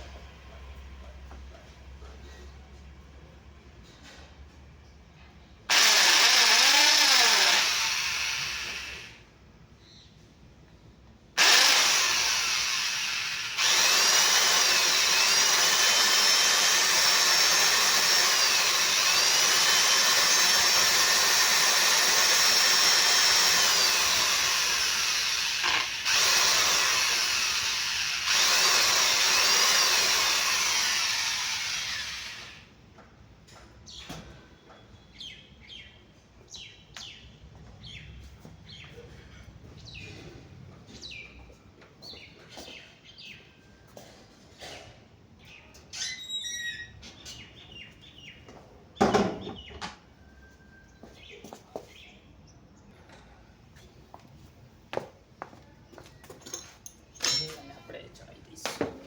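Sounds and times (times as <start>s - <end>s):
electric power tool whining: 5.7s - 9.2s, 11.4s - 32.7s.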